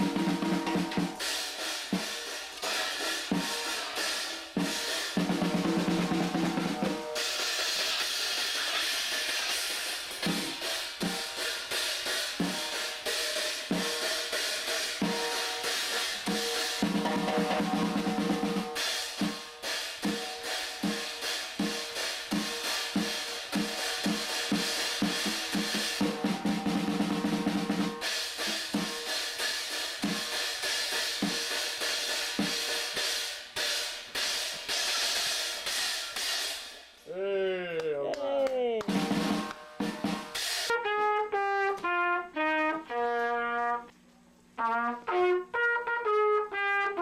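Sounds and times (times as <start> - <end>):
cymbals ringing: 0.0 - 8.7, 10.5 - 33.2
drum strikes and rolls: 0.0 - 36.7, 38.8 - 40.8.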